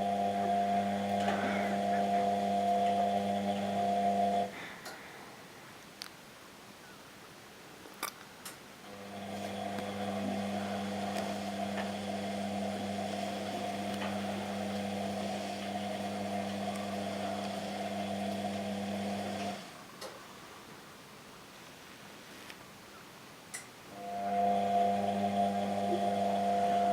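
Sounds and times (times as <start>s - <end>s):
washing machine motor hum: 0.0s - 4.5s, 8.8s - 19.9s, 23.9s - 26.9s.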